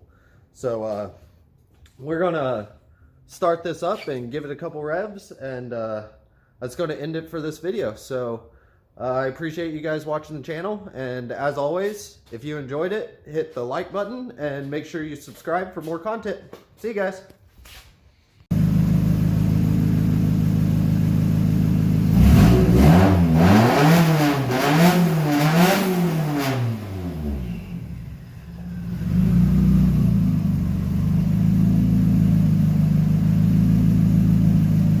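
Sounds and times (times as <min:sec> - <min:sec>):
car engine idling and revving: 0:18.5 - 0:35.0.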